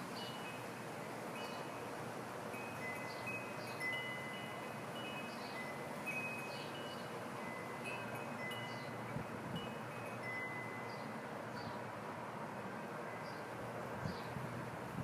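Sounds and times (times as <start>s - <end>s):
wind chimes ringing: 1.3s - 1.9s, 2.5s - 11.2s.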